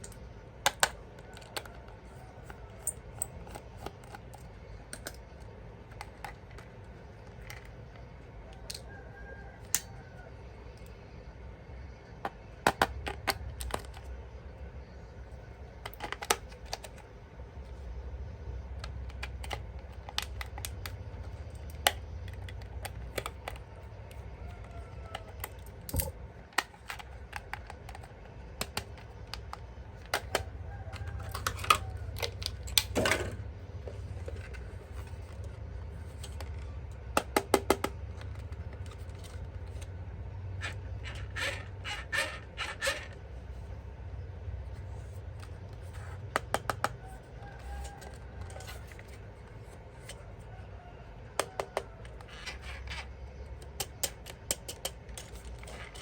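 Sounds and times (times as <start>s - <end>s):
plastic toy clicks and taps: 36.3s - 39.3s, 51.4s - 52.3s.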